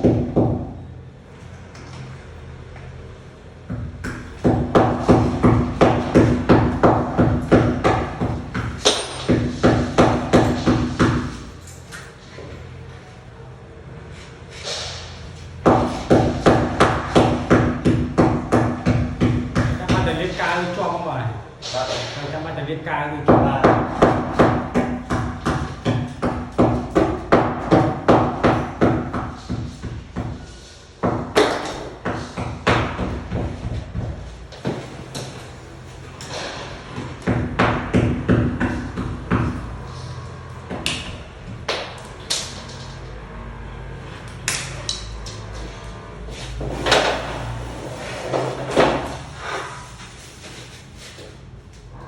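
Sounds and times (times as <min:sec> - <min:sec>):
hammer blows ringing: 0:04.0 - 0:11.6, 0:23.3 - 0:34.9.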